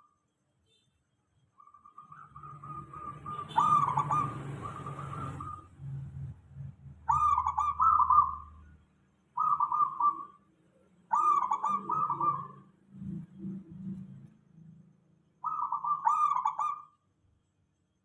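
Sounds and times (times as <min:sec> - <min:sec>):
dove cooing: 0:02.0 - 0:05.7, 0:07.1 - 0:08.6, 0:09.4 - 0:10.4, 0:11.1 - 0:12.6, 0:15.4 - 0:16.9.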